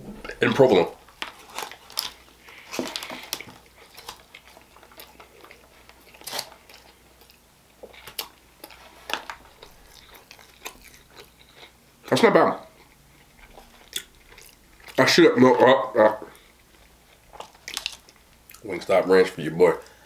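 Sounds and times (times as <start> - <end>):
biting and chewing crunchy food: 0.2 - 20.0.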